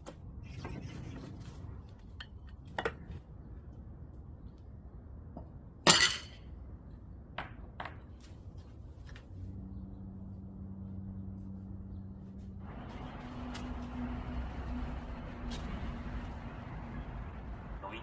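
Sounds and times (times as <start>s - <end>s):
rushing noise: 12.6s - 18.0s.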